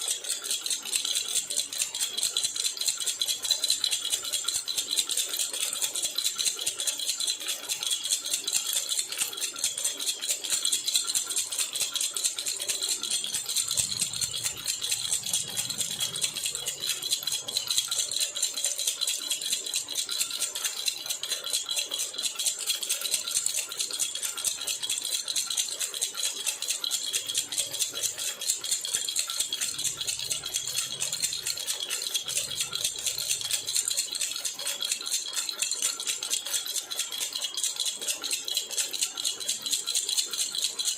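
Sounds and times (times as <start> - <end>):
baby rattle shaken: 8.1 - 40.9.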